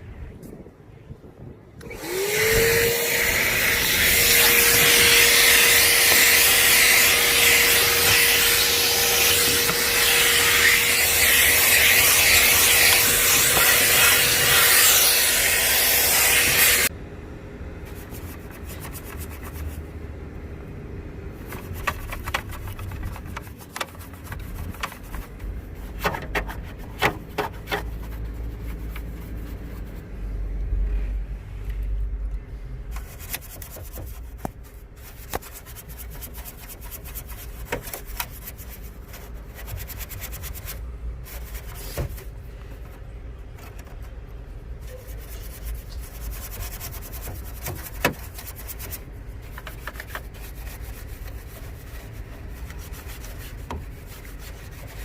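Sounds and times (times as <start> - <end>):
vacuum cleaner running: 1.8 - 16.9
clicks and rubbing: 21.4 - 30.0, 32.9 - 55.0.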